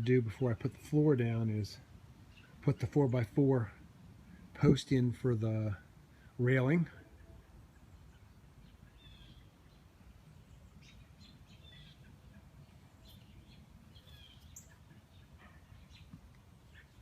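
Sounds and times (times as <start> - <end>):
bird chirps: 7.0 - 17.0.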